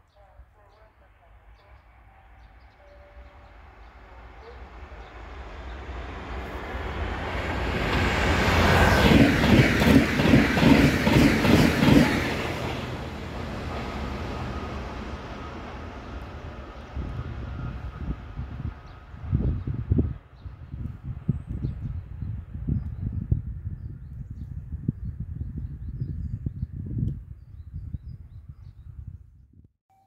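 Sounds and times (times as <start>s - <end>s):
train rumble: 0.4s - 22.6s.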